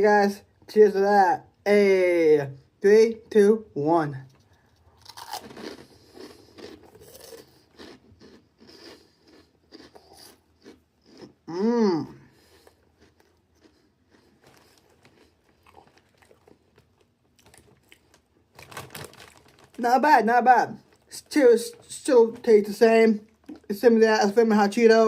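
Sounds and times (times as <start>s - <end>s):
person chewing crunchy snacks: 4.4s - 19.8s, 23.2s - 23.7s
person humming: 11.5s - 12.3s.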